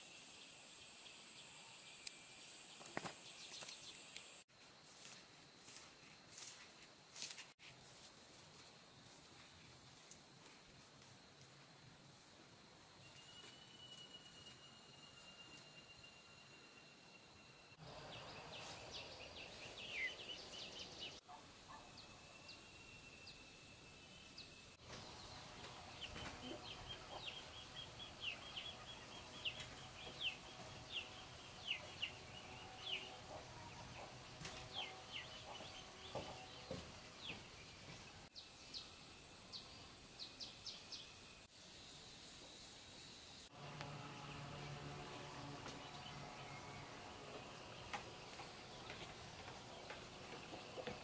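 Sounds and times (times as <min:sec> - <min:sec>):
birds chirping: 0:17.8 - 0:38.8, 0:43.6 - 0:51.0.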